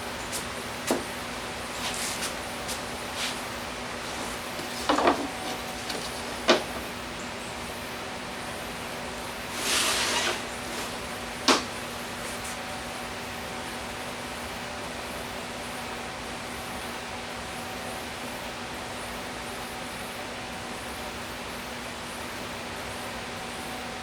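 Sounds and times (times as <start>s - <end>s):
short hissing scrape: 9.5s - 11.1s.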